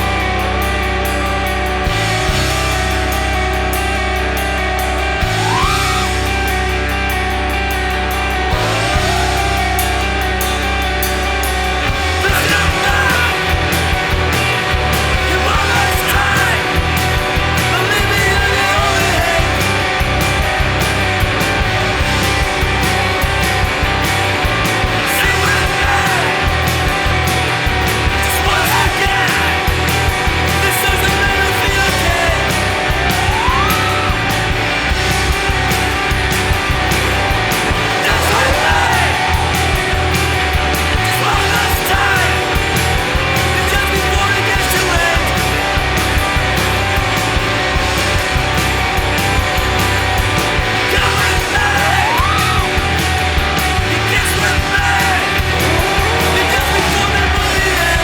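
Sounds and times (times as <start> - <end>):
distorted electric guitars: 0.0 - 58.0
drums: 0.0 - 58.0
person singing: 12.2 - 13.8, 25.0 - 26.7, 37.9 - 45.9, 50.8 - 52.8, 53.9 - 58.0.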